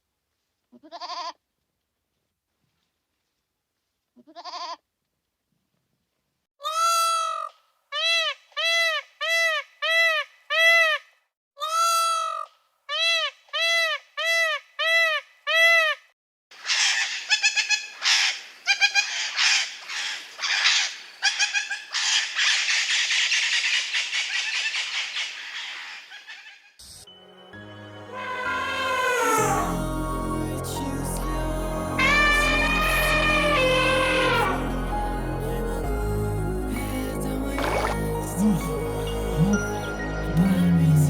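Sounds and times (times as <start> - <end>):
animal calling: 28.0 - 30.2, 31.8 - 35.2, 37.6 - 38.0
harsh screeching chatter: 28.1 - 30.2.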